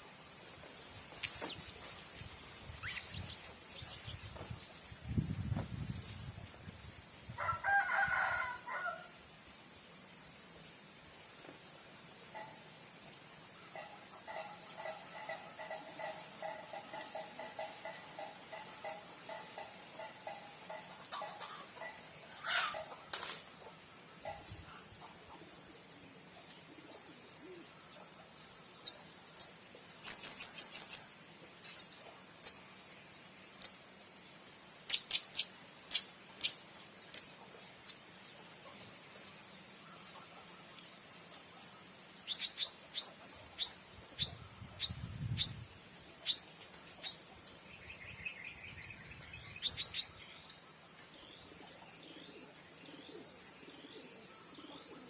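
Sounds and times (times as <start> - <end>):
insects buzzing: 0.0 - 55.0
parrots calling: 1.2 - 4.1.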